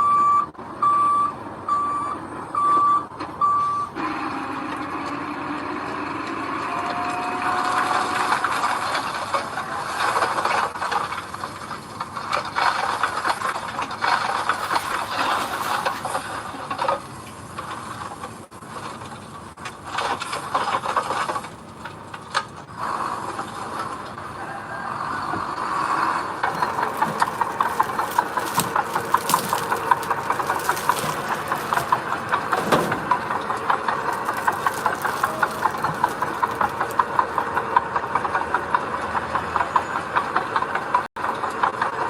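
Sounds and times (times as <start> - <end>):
truck engine running: 1.0 - 24.4, 25.0 - 42.0
gravel sliding and rattling: 7.6 - 24.2, 26.0 - 39.0.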